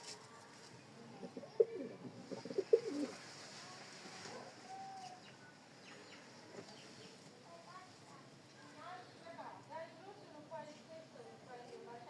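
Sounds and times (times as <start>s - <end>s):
pigeon cooing: 1.2s - 3.2s.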